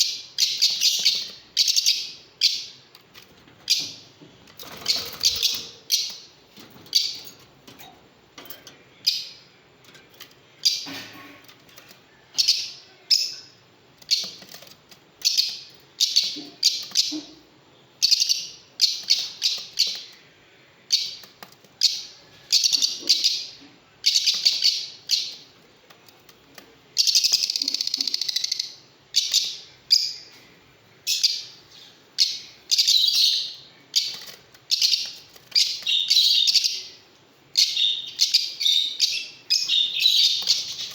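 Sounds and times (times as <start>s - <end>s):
lovebirds chirping shrilly: 0.0s - 2.9s, 4.6s - 7.3s, 15.2s - 25.5s, 31.1s - 40.9s.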